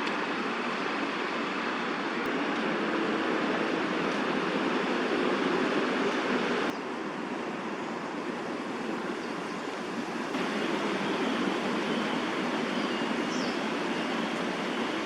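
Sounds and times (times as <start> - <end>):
distant city traffic: 0.0 - 15.0
faint high chirp: 11.1 - 15.0.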